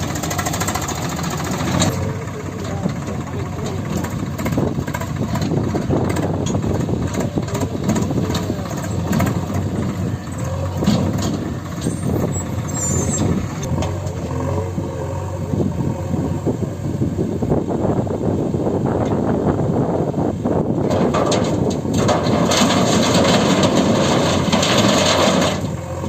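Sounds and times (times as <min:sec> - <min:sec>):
diesel engine running: 0:00.0 - 0:26.0
clattering knocks: 0:20.8 - 0:25.8.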